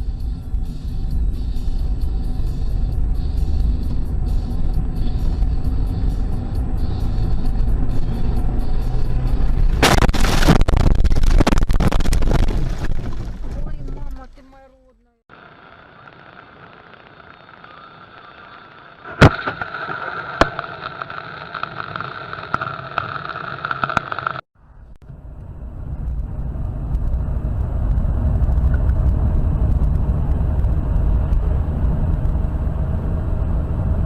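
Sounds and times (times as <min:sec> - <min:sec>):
car engine and road noise: 0:00.0 - 0:34.0
car collision bang: 0:09.8 - 0:12.8.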